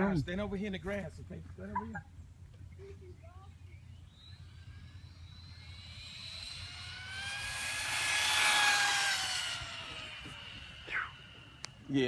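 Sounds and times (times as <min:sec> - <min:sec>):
toy truck electric motor whine: 0:03.9 - 0:12.0.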